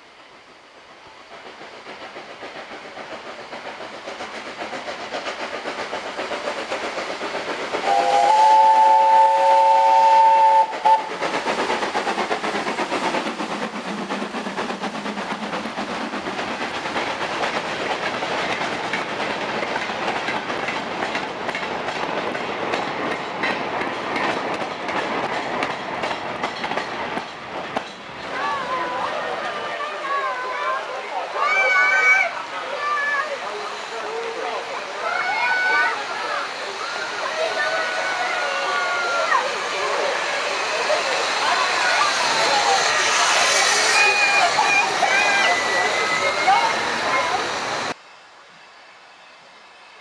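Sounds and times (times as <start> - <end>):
train running noise: 0.0 - 50.0
train whistle: 7.8 - 11.1.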